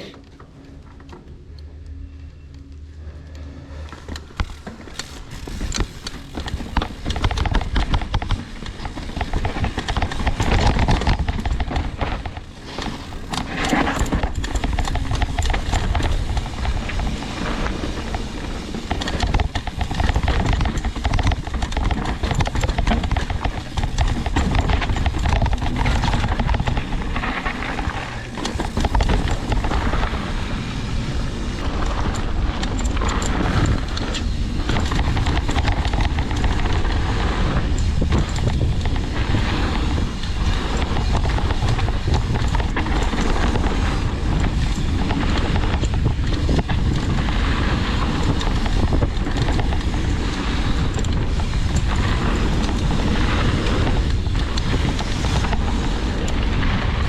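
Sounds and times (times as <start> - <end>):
tyres on dirt and rock: 3.0 - 57.0
wind buffeting microphone: 3.0 - 57.0
bike rattling knocks: 4.3 - 30.5.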